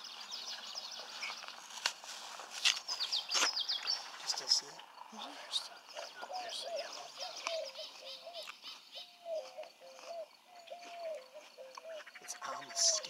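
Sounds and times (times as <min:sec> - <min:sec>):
birds chirping: 0:00.0 - 0:13.0
low level bird notes: 0:02.8 - 0:13.0.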